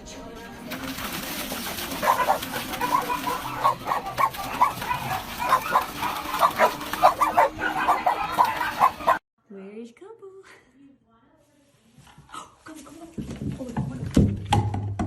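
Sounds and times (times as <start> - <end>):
animal calling rapidly: 1.6 - 9.2.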